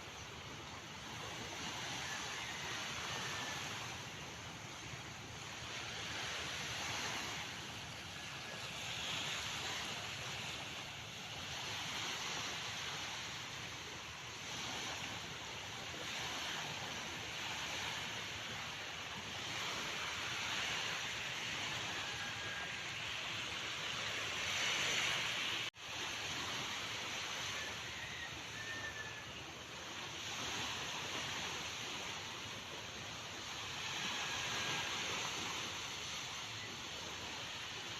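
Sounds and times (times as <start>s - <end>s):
sea waves surf hiss: 0.0s - 37.9s.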